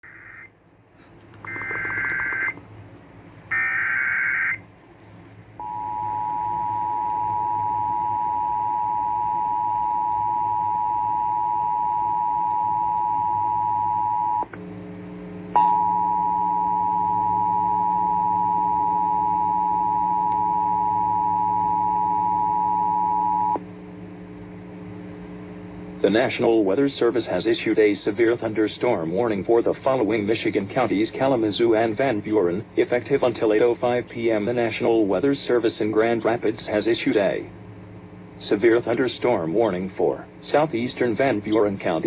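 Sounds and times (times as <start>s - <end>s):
low hum: 0.0s - 42.0s
screechy digital data bursts: 1.4s - 2.6s
two-tone alert signal: 1.5s - 2.6s.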